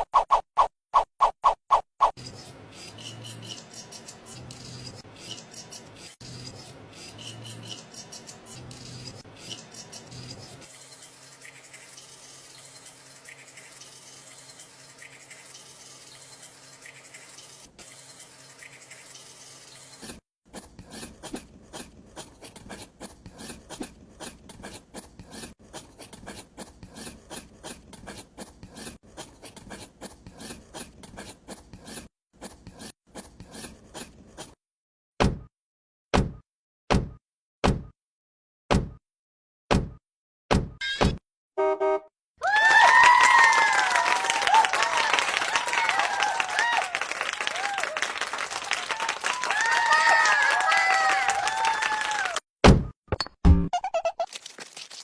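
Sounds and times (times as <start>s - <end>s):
tool scraping miniature bricks: 2.1s - 34.6s.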